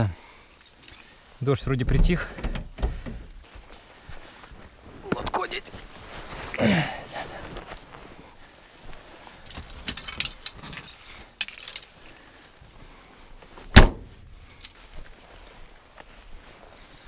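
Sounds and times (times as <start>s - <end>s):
keys jangling: 0.4s - 1.1s, 9.5s - 12.0s, 14.4s - 15.3s, 16.6s - 17.0s
loud thump: 13.7s - 14.2s.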